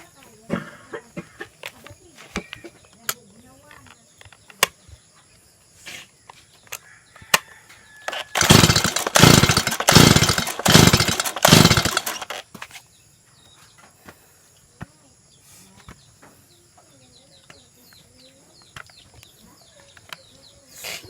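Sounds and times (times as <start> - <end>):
chainsaw engine bursts: 8.1 - 12.5.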